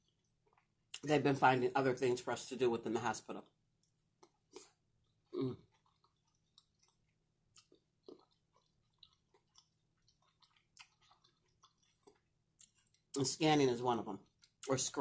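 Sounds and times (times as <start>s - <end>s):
chewing with wet mouth clicks: 0.0s - 1.0s, 3.8s - 13.2s, 14.2s - 14.7s.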